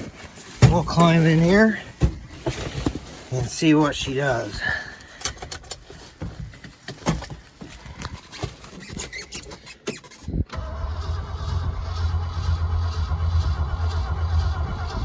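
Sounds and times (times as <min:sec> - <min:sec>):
starter cranking engine: 0:10.2 - 0:15.0.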